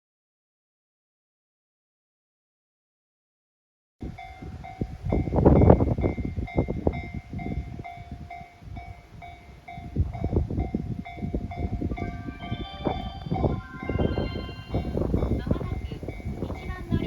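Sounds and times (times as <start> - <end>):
low train rumble: 4.0 - 17.0
faint ringing tone: 10.7 - 16.8.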